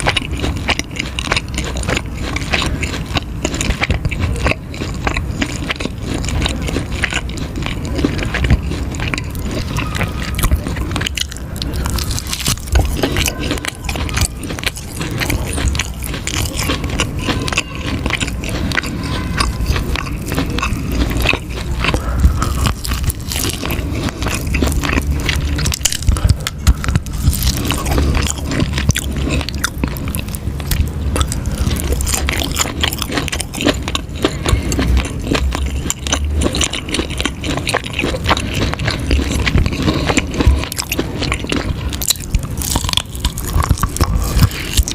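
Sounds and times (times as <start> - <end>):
crunchy biting and chewing: 0.0 - 44.9.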